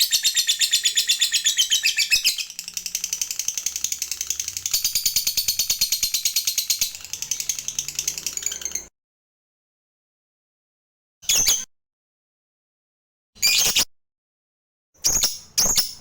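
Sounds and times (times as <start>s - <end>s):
lovebird chattering trill: 0.0s - 8.7s.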